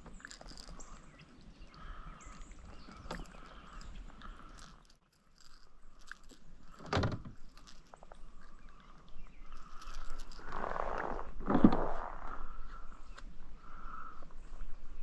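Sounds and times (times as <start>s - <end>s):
handling clicks and scrapes: 2.9s - 8.6s, 9.4s - 12.4s.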